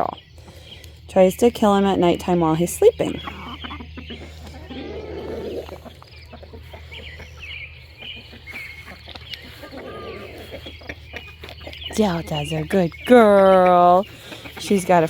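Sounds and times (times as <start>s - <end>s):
chickens clucking: 0.0s - 15.0s
light ticks and rustles: 8.5s - 9.8s.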